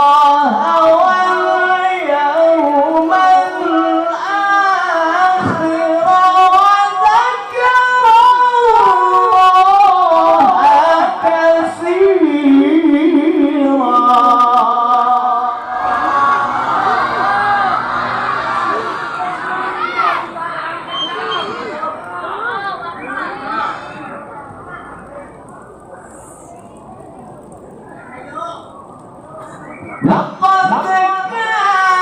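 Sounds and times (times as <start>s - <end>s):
man reciting in melodic chant: 0.0s - 15.6s, 30.0s - 32.0s.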